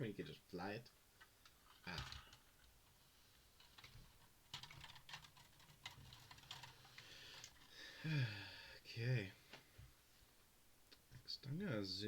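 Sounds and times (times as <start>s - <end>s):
plastic pieces clicking: 1.4s - 2.8s.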